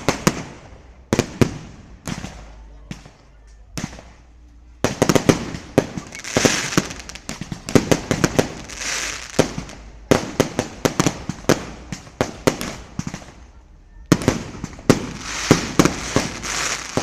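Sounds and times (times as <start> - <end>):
fireworks bangs and crackles: 0.0 - 17.0
fireworks hissing: 4.8 - 17.0.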